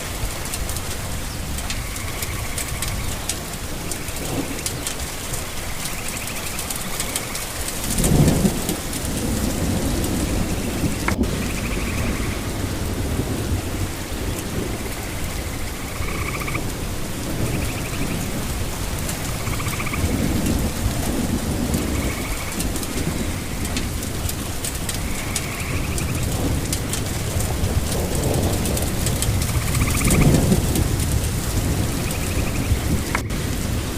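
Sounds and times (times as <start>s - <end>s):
heavy rain: 0.0s - 33.9s
thunder rolling: 0.0s - 33.9s.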